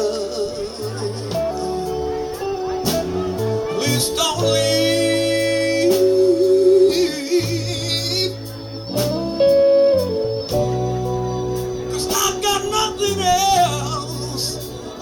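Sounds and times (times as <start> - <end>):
blues-rock band playing: 0.0 - 15.0.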